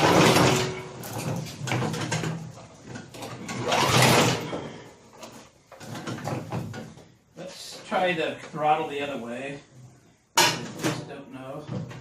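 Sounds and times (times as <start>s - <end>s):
mower engine cranking: 0.0s - 4.8s.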